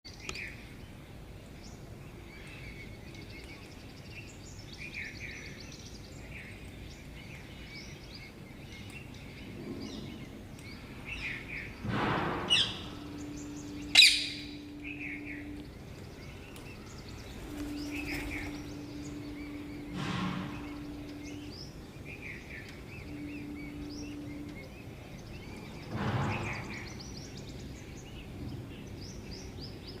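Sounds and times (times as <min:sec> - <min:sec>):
low steady hum: 0:00.1 - 0:30.0
parrots chirping: 0:13.4 - 0:14.8
sharp loud sound: 0:19.9 - 0:21.1.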